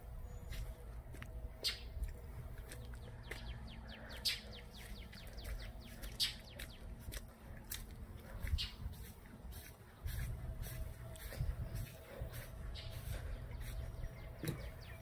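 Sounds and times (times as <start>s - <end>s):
birds chirping: 0.0s - 15.0s
low steady rumble: 0.0s - 15.0s.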